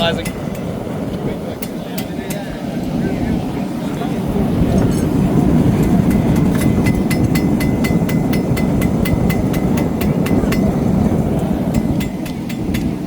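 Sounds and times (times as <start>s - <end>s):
forge burner roaring: 0.0s - 13.0s
hammer blows on steel: 4.7s - 11.0s.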